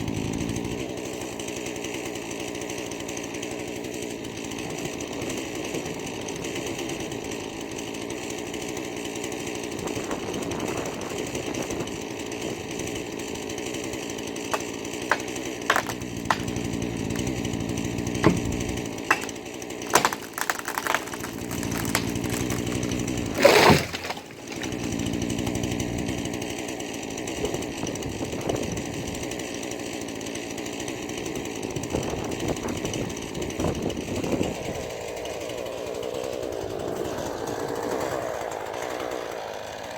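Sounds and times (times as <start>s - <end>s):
chainsaw cutting: 0.0s - 39.9s
wood cracking and snapping: 13.4s - 26.5s.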